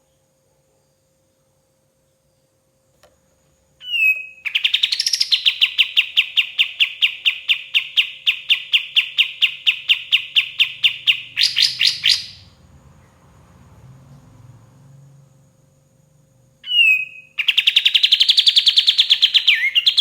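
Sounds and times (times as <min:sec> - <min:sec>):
songbird trilling: 0:03.8 - 0:12.5, 0:16.6 - 0:20.0.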